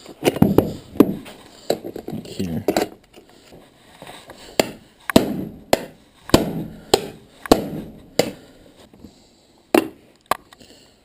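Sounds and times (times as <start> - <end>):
hammer strikes: 0.3 - 1.3, 4.6 - 8.5.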